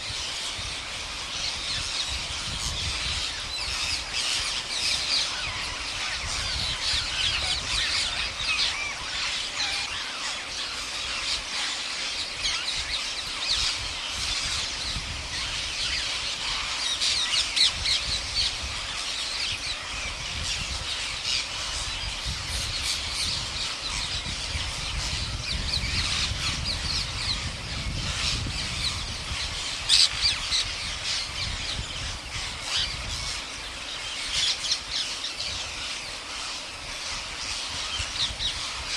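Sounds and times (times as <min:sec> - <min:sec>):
parrots squawking and chattering: 0:00.0 - 0:38.9.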